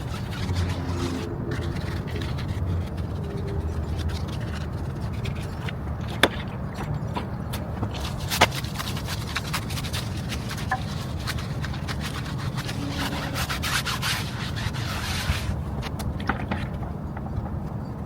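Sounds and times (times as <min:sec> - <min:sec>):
brush scrubbing a tire: 0:00.0 - 0:06.2, 0:07.9 - 0:15.9
steady low hum: 0:11.6 - 0:15.8.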